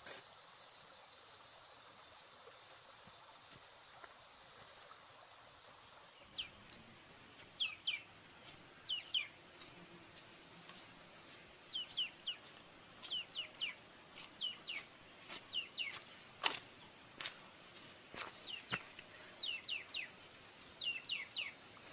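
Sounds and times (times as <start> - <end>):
bird chirping: 6.2 - 6.8, 7.5 - 9.7, 11.6 - 16.2, 18.2 - 21.7
high-pitched insect drone: 6.4 - 21.9.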